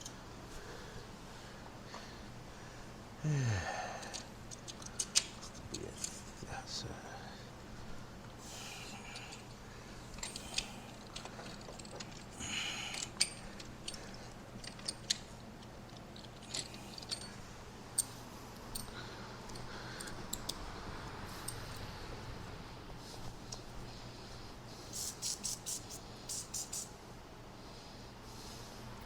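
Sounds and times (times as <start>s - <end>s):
steady low hum: 0.0s - 29.0s
metallic clicks of hand tools: 4.0s - 6.1s, 12.9s - 15.3s, 19.5s - 20.6s
short hiss: 24.8s - 26.9s.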